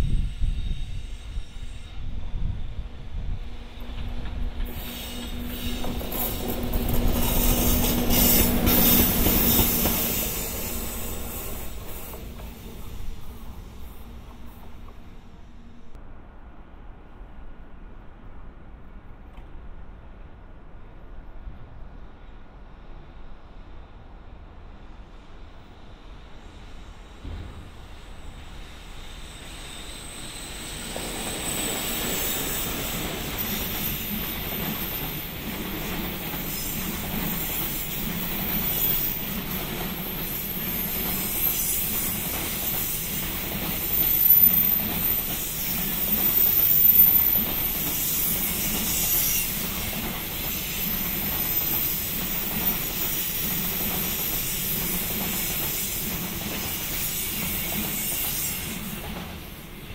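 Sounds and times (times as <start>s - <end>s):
train wheels rumbling and clacking: 0.0s - 16.0s, 25.1s - 59.9s
high thin wheel squeal: 4.5s - 14.6s, 28.0s - 59.7s.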